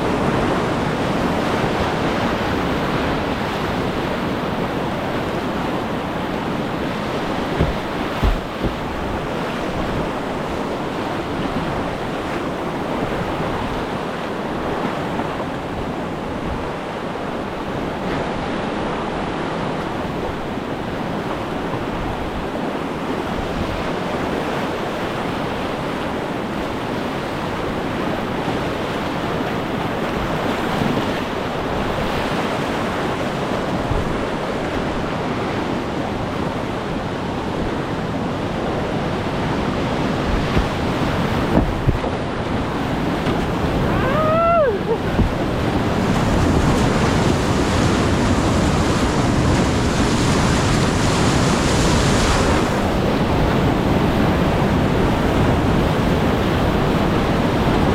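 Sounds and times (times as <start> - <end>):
wind buffeting microphone: 0.0 - 17.0, 27.4 - 57.9
river rushing: 0.0 - 57.9.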